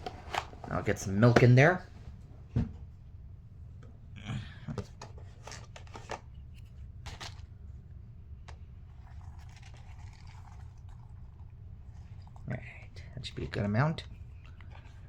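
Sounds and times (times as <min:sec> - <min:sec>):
container clicks and rustles: 0:07.0 - 0:07.5, 0:08.9 - 0:13.6
milk pouring into cereal bowl: 0:08.6 - 0:13.6.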